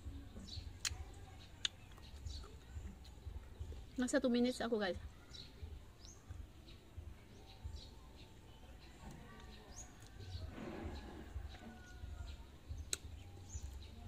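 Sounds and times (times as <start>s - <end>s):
small birds chirping: 0.0s - 14.0s
low uneven rumble: 8.9s - 12.7s
rustling noise: 10.4s - 11.6s.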